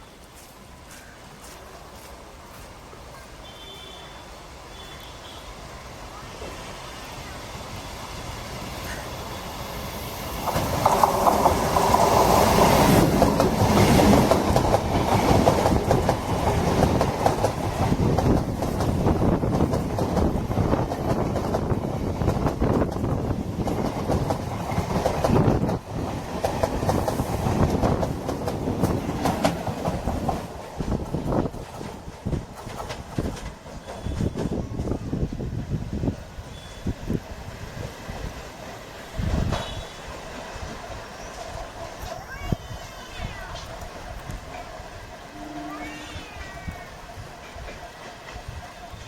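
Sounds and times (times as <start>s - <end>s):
train wheels clattering: 8.8s - 35.0s.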